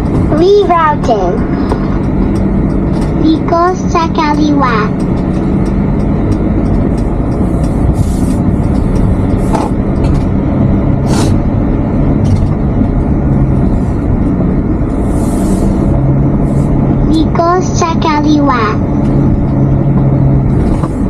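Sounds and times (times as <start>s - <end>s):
road and engine drone: 0.0s - 21.0s
brief hissing swooshes: 11.0s - 11.4s, 15.0s - 15.9s.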